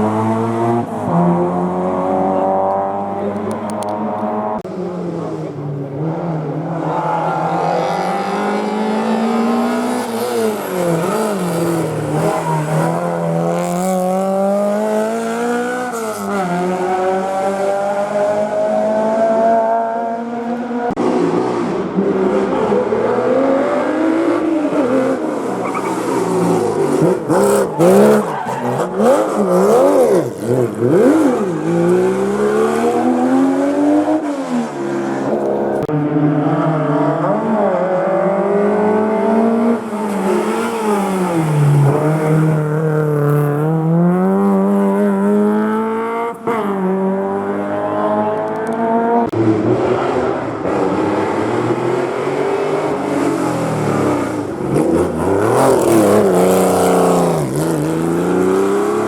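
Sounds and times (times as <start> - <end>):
car accelerating through gears: 0.0 - 59.0
rally car engine revving: 0.0 - 59.0.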